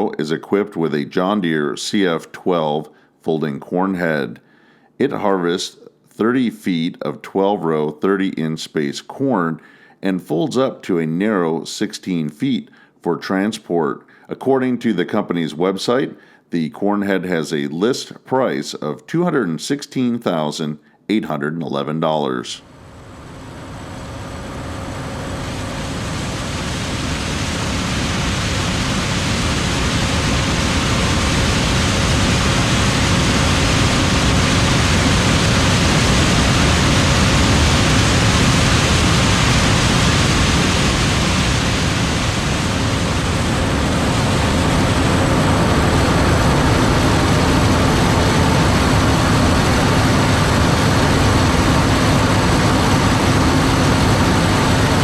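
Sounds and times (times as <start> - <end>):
combine harvester running: 22.7 - 55.0.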